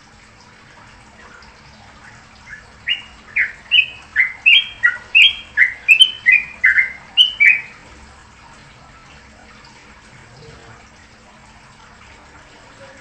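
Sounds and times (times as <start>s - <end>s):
songbird chirping: 2.4s - 7.8s.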